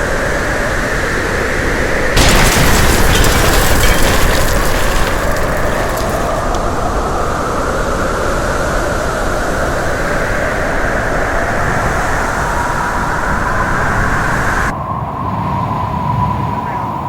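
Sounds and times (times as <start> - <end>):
loud rushing wind: 6.6 - 17.0.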